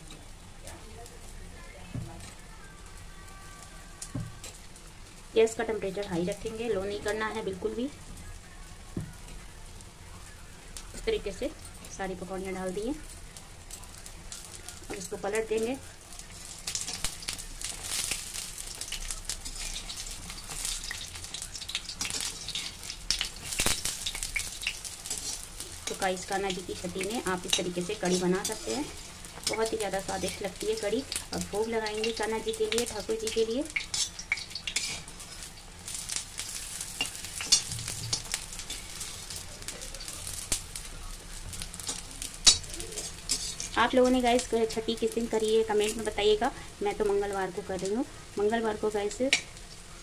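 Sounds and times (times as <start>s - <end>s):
fritters sizzling in hot oil: 0.0s - 50.0s
metal spoon clinking and scraping pan: 16.8s - 40.5s, 41.8s - 44.5s.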